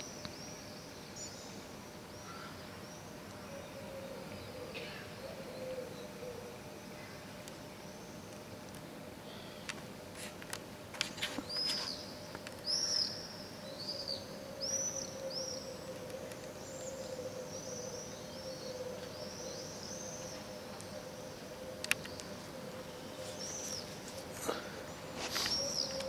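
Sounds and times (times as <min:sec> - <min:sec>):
steady low hum: 0:00.0 - 0:26.0
small birds chirping: 0:11.1 - 0:26.0.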